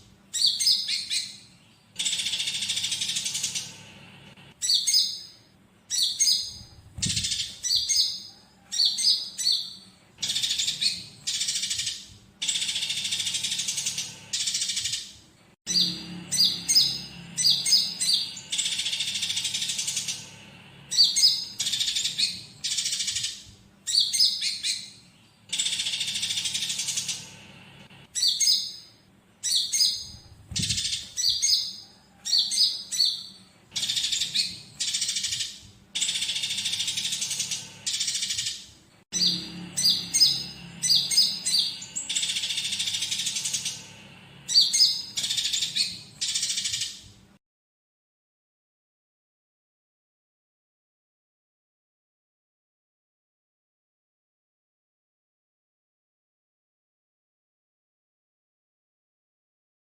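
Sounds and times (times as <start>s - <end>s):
songbird rapid high chirps: 0.3s - 3.9s, 4.6s - 27.4s, 28.1s - 38.6s, 39.2s - 47.0s
sparrows squabbling calls: 0.3s - 47.0s.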